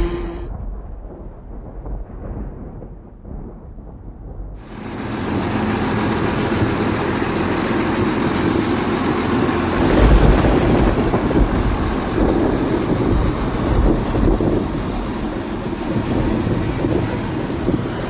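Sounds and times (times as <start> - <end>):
heavy low rumbling: 0.0 - 18.0
high-pressure water jet rushing: 4.6 - 18.0.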